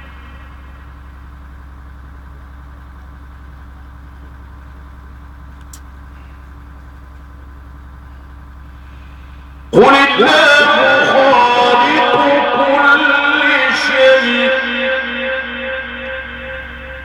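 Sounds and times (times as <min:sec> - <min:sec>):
low electrical hum: 0:00.0 - 0:17.0
faint click: 0:05.5 - 0:05.9.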